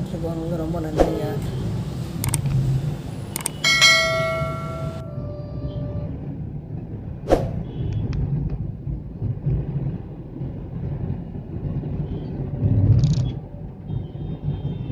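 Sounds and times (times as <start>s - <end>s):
car road and engine rumble: 0.0s - 14.9s.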